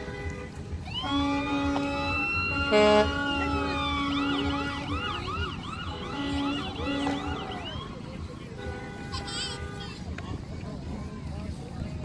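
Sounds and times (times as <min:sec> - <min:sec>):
horn blast: 0:00.0 - 0:10.0
emergency siren wailing: 0:00.7 - 0:08.4.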